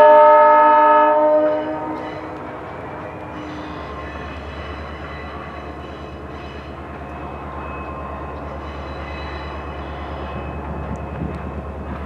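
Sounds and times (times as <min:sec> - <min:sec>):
train low rumble: 0:00.0 - 0:12.0.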